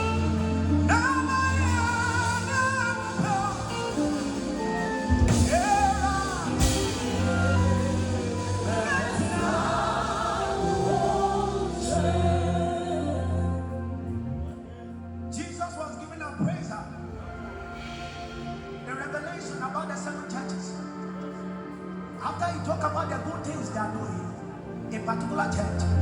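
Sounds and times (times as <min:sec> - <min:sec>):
person singing: 0:00.0 - 0:15.0
sustained chords: 0:00.0 - 0:15.5
steady bass: 0:00.0 - 0:15.6.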